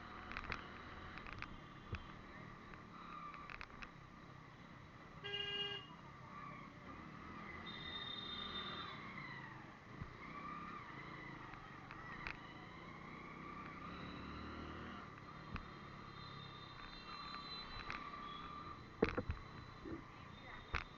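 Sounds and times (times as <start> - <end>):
road noise: 0.0 - 20.9
vehicle engines running: 9.1 - 20.9.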